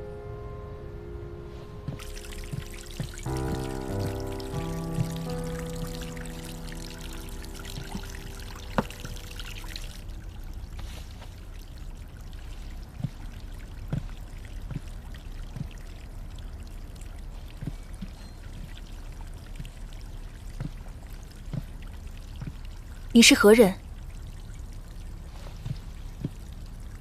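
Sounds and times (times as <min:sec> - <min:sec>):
held music note: 0:00.0 - 0:10.2
trickling water: 0:01.9 - 0:27.0.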